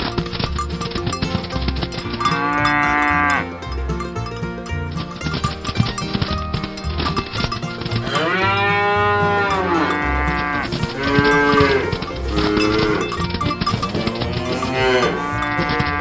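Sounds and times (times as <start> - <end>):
cattle mooing: 7.9 - 16.0.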